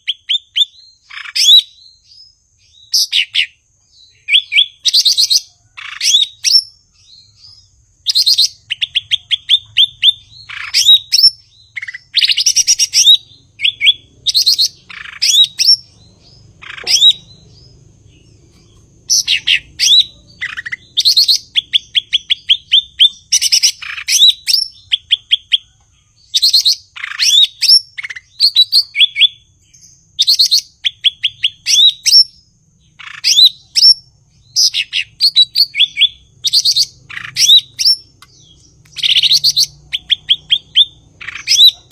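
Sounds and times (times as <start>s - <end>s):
bird singing whistled notes: 0.0s - 41.9s.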